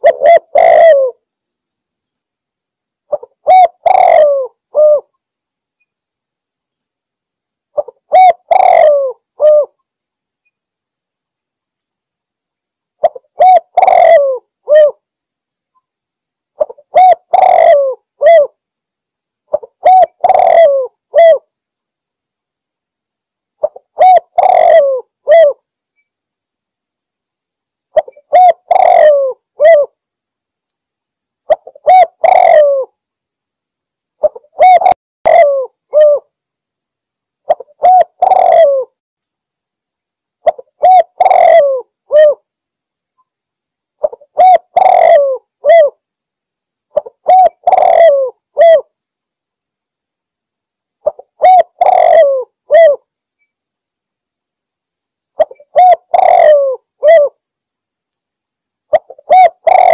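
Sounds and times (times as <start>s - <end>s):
dove cooing: 0.0s - 1.2s, 3.1s - 5.1s, 7.8s - 9.8s, 13.0s - 15.0s, 16.6s - 18.6s, 19.5s - 21.5s, 23.6s - 25.6s, 28.0s - 30.0s, 31.5s - 33.0s, 34.2s - 36.3s, 37.5s - 39.0s, 40.4s - 42.4s, 44.0s - 46.0s, 47.0s - 48.9s, 51.0s - 53.0s, 55.4s - 57.4s, 58.9s - 59.9s.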